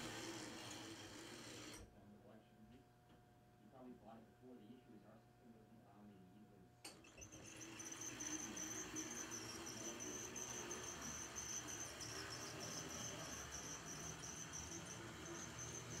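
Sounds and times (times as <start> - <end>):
model train motor whine: 0.0 - 1.8, 6.9 - 16.0.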